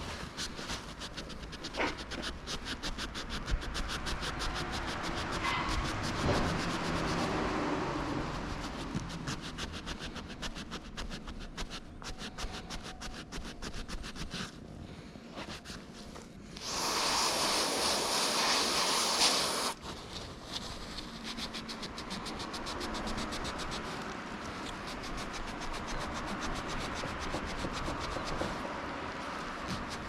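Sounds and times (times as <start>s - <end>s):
aerosol spray hissing: 16.6s - 19.8s.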